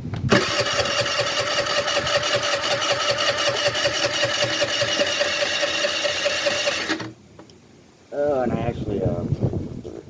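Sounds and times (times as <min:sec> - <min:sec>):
electric starter cranking engine: 0:00.3 - 0:07.2.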